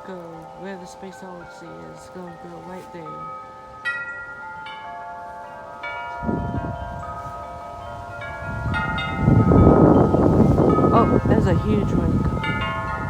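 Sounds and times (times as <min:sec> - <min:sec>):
wind chimes ringing: 0:00.0 - 0:13.0
wind rushing on microphone: 0:06.1 - 0:13.0.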